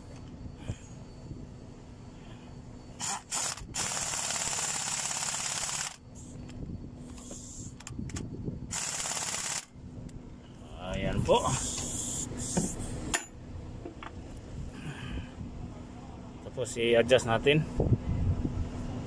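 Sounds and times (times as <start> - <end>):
ratchet wrench clicking: 3.0 - 6.0.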